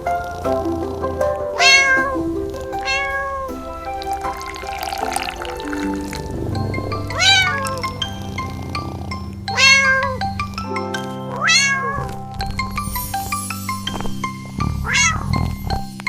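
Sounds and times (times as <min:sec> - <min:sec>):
background music with held notes: 0:00.0 - 0:16.0
cat meowing: 0:01.6 - 0:02.2, 0:02.8 - 0:03.4, 0:09.5 - 0:10.2, 0:11.4 - 0:12.2, 0:14.8 - 0:15.3.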